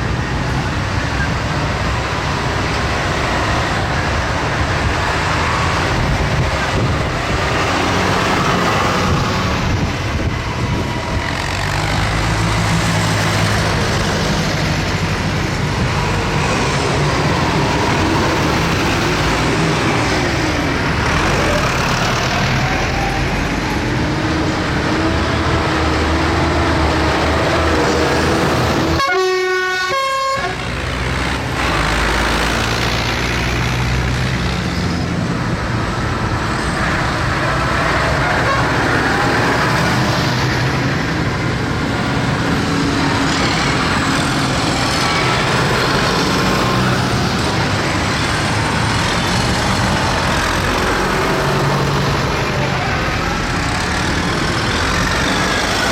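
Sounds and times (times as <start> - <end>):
tractor engines running: 0.0 - 55.9
vehicle horn blowing: 29.0 - 30.6.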